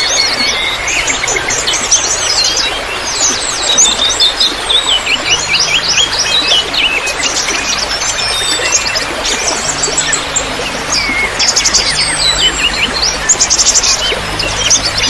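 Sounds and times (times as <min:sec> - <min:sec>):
running water trickling: 0:00.0 - 0:15.0
songbirds chirping and trilling: 0:00.0 - 0:15.0.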